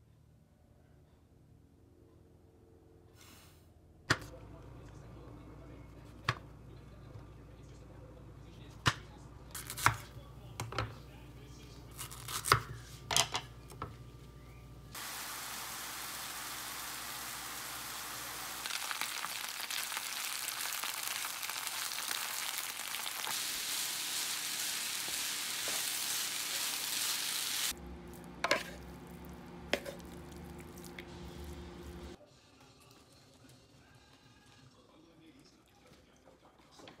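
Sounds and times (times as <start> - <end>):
vegetables sizzling in a pan: 15.0 - 27.8.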